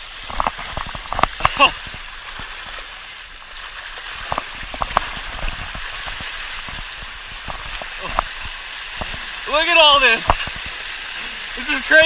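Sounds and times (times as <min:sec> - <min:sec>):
fish pattering on water surface: 0:03.6 - 0:09.4.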